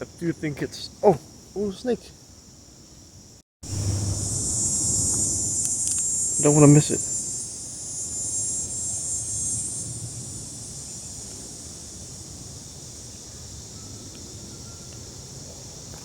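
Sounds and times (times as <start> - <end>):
insects droning: 0.0 - 16.0
low rustling: 3.6 - 5.6.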